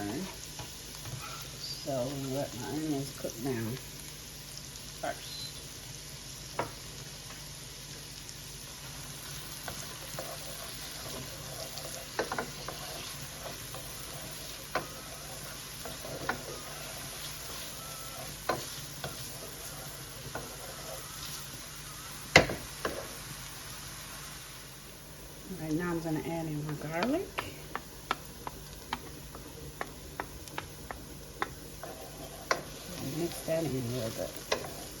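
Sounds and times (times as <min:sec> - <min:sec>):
onions sizzling in a pan: 0:00.0 - 0:35.0.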